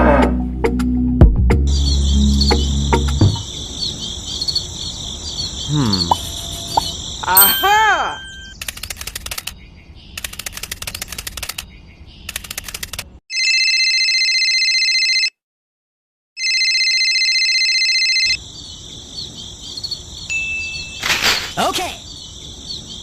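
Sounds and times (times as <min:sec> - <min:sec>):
high tone with chirps: 0:01.7 - 0:04.1, 0:05.3 - 0:08.6, 0:20.3 - 0:21.1
telephone ringing: 0:06.4 - 0:08.6, 0:13.3 - 0:15.4, 0:16.4 - 0:18.4.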